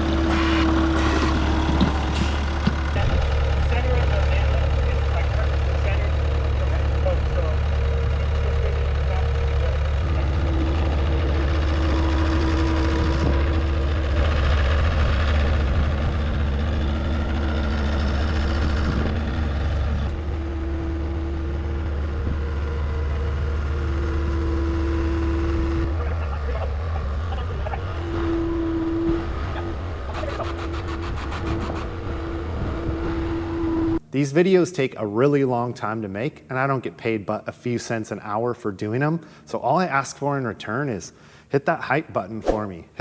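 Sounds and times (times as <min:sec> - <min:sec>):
heavy equipment engine drone: 0:00.0 - 0:37.1
high steady whine: 0:25.2 - 0:31.2.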